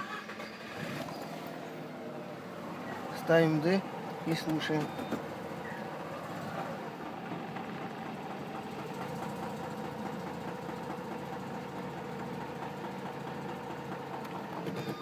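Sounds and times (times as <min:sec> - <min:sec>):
rotary engine idling: 0:00.0 - 0:15.0.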